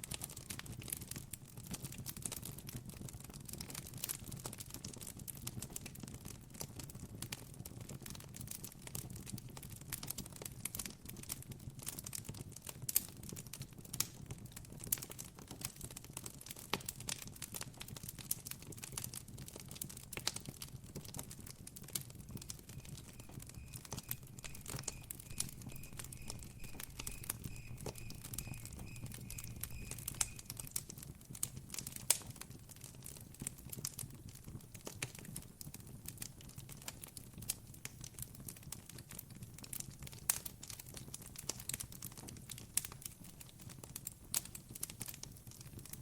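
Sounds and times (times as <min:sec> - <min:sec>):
campfire crackling: 0:09.9 - 0:46.0
cricket trill: 0:23.2 - 0:30.6.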